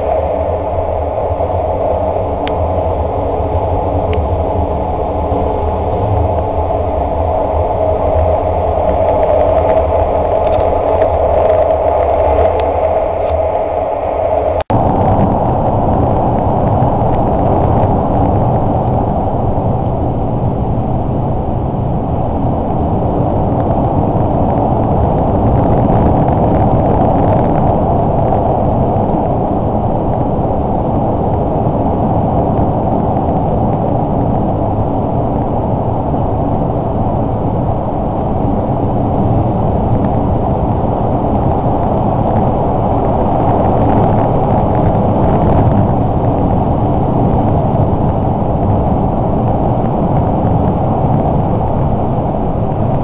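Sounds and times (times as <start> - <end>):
faint high whine: 0.0 - 53.0
rushing air: 0.0 - 53.0
train wheels rumbling on rail: 0.0 - 53.0.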